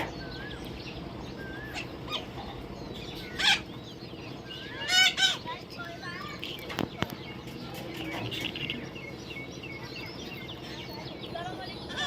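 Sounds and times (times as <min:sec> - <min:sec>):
parrot chirping and squawking: 0:01.4 - 0:06.8.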